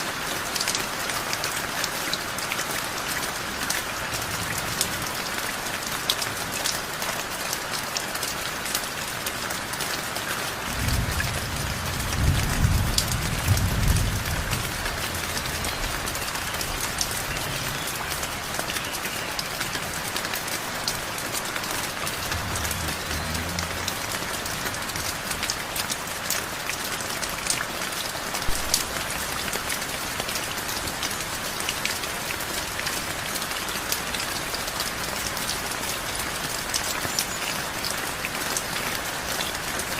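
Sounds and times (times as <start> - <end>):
heavy rain: 0.0 - 39.9
low thunder rumble: 10.7 - 17.5, 21.9 - 25.3.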